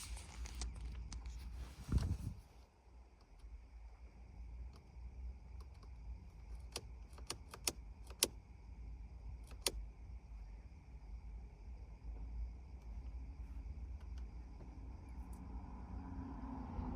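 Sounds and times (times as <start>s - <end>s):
low steady hum: 0.0s - 16.9s
car key and switch clicks: 6.6s - 8.4s, 9.4s - 9.8s.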